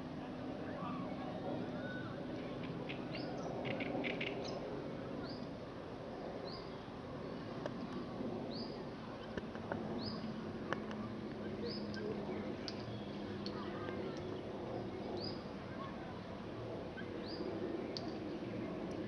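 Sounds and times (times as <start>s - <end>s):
steady outdoor hiss: 0.0s - 19.0s
faint clicks: 11.9s - 14.3s, 17.9s - 18.2s.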